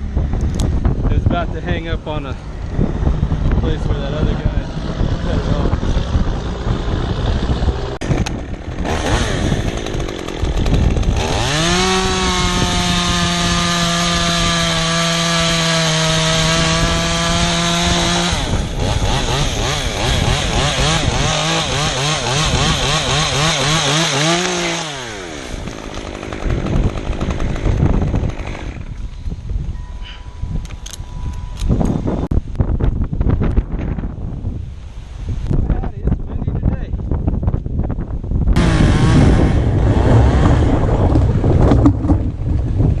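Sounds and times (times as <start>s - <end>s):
chainsaw cutting wood: 4.7s - 29.1s, 38.6s - 42.9s.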